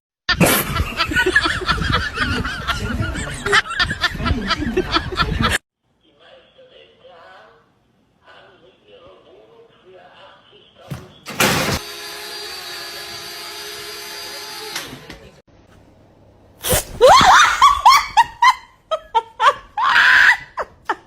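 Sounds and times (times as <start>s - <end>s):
bursts of laughter: 0.3s - 5.6s, 17.0s - 21.0s.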